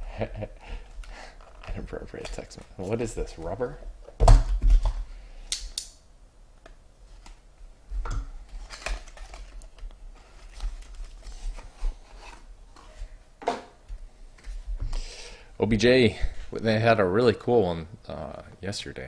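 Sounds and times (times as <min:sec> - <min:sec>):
packaging rustling: 0:08.4 - 0:12.4.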